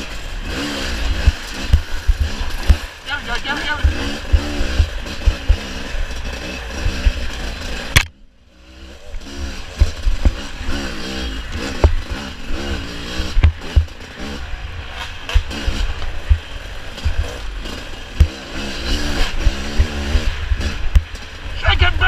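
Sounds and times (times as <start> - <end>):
dirt bike engine revving: 0.0 - 22.0
low thumps and knocks: 11.5 - 12.2, 13.2 - 14.3, 14.9 - 17.4.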